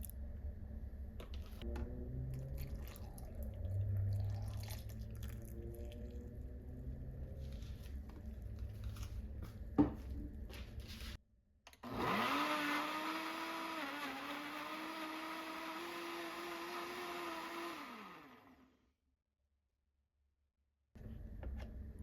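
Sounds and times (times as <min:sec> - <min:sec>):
electric blender motor: 0:11.8 - 0:18.8.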